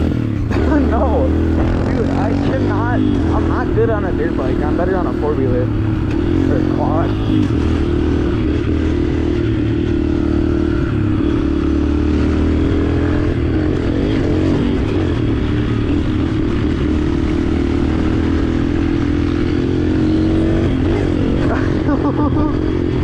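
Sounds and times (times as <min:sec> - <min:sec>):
dirt bike engine running: 0:00.0 - 0:23.0.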